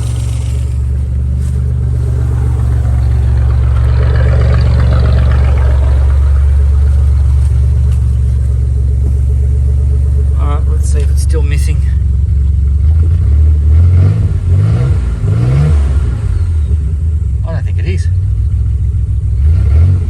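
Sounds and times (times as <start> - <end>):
car engine running: 0.0 - 19.4.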